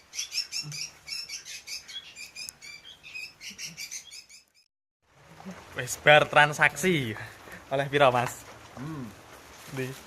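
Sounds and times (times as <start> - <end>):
small birds chirping: 0.0 - 4.7.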